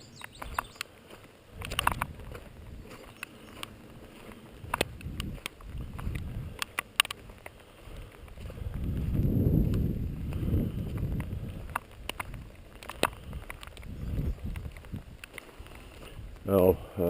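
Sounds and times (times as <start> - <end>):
sharp ticks and clicks: 0.0 - 16.5
wind on microphone: 1.5 - 16.9.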